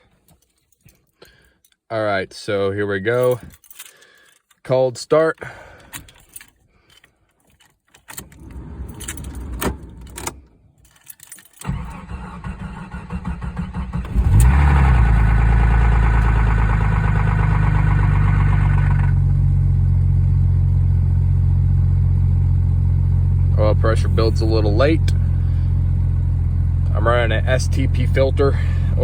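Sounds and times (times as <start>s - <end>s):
starter motor cranking: 11.6s - 19.2s
engine clatter: 11.6s - 20.2s, 22.6s - 29.0s
car engine idling: 11.6s - 29.0s.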